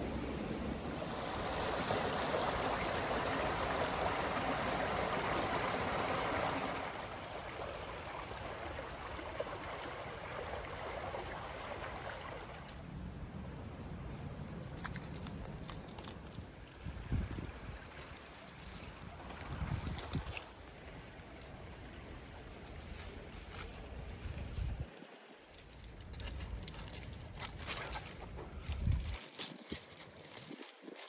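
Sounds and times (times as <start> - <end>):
water trickling over stones: 14.6 - 31.0.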